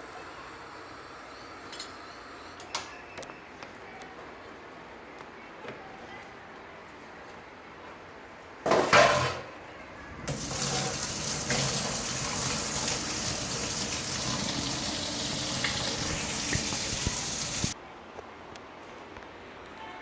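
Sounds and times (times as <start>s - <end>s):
water running in a stream: 10.3s - 17.8s.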